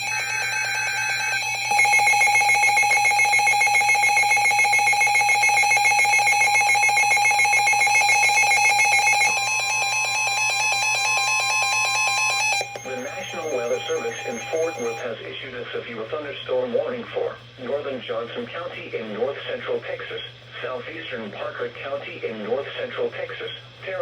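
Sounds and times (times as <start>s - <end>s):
pulsing electronic alarm: 0.0s - 15.1s
steady alarm tone: 0.0s - 15.1s.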